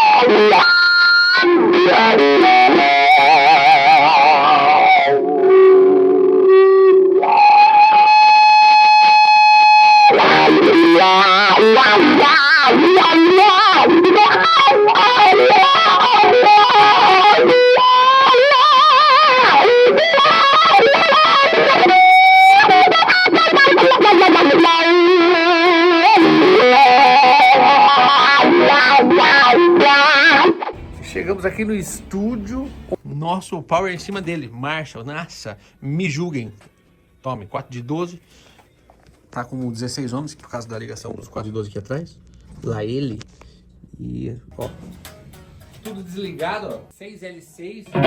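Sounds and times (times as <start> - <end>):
distorted electric guitar lead: 0.0 - 33.0, 41.9 - 46.9.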